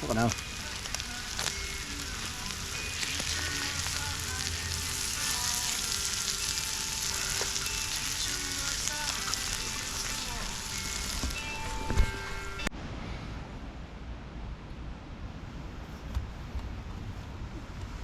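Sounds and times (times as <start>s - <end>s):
food sizzling in a pan: 0.0s - 12.7s.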